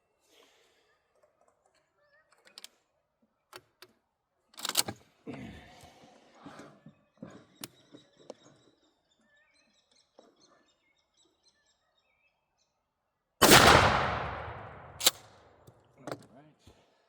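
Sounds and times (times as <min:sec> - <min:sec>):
faint birds chirping: 0:06.2 - 0:15.0
shotgun blast with echo: 0:13.4 - 0:15.2.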